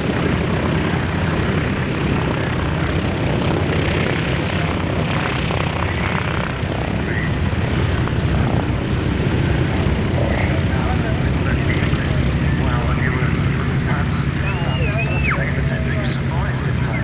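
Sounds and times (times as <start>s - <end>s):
propeller plane engines rumbling: 0.0s - 17.0s.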